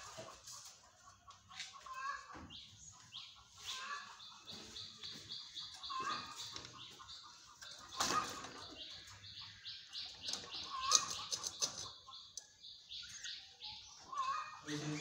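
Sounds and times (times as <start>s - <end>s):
budgerigars chirping: 3.2s - 15.0s.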